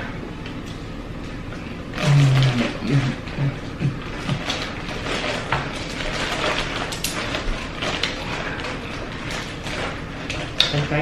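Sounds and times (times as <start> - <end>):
crab shells cracking: 4.0 - 10.9.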